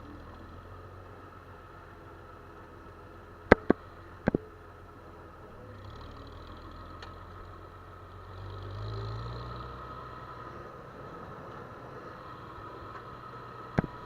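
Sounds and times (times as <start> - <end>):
farm machinery engine running: 9.7 - 14.0.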